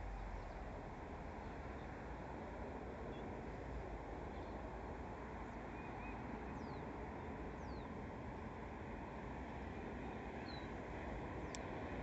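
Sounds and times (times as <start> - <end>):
steady rushing noise: 0.0 - 12.0
bird chirp: 5.7 - 6.9, 7.6 - 7.9, 10.4 - 10.7.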